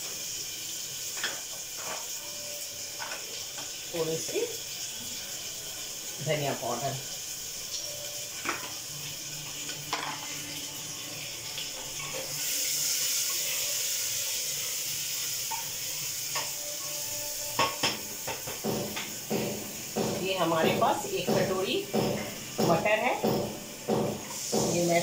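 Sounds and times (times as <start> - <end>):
masala sizzling in oil: 0.0 - 25.0
wooden spatula knocking on pot: 17.6 - 24.8.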